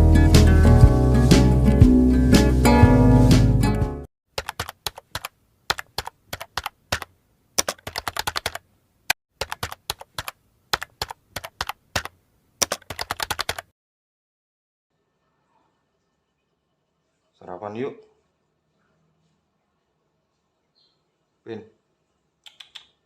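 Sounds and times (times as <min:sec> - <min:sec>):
music: 0:00.0 - 0:04.1.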